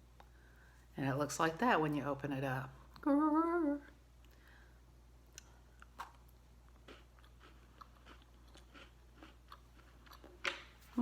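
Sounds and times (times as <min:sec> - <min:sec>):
person humming: 0:03.0 - 0:04.0
person chewing: 0:05.3 - 0:10.7
faint crunches and mouth clicks: 0:05.3 - 0:10.8.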